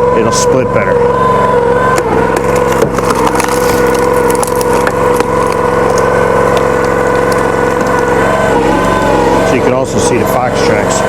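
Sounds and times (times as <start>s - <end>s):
small gas engine running: 0.0s - 11.0s
wood splitting cracks: 1.8s - 9.8s.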